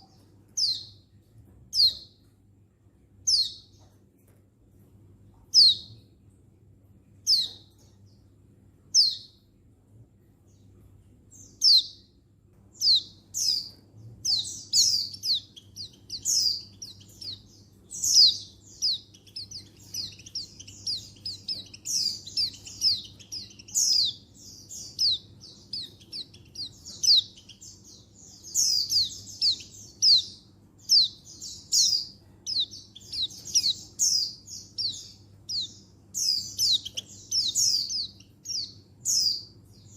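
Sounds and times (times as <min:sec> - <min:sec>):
bird chirps slurring downward: 0:14.3 - 0:39.4.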